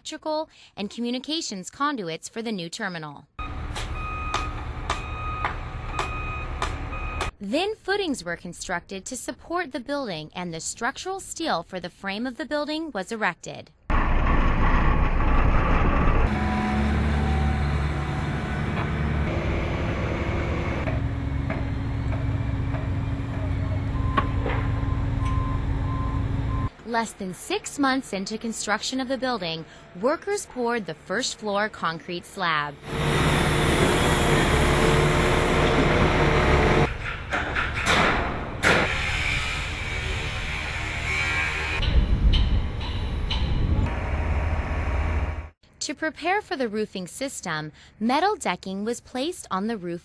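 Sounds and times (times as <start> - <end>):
heavy machinery engine running: 13.9 - 26.8, 32.7 - 36.9, 43.8 - 45.6.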